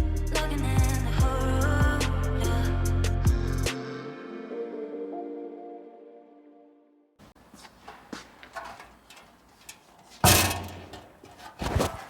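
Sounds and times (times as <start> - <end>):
background music: 0.0 - 7.1
handling clicks and knocks: 7.3 - 12.0.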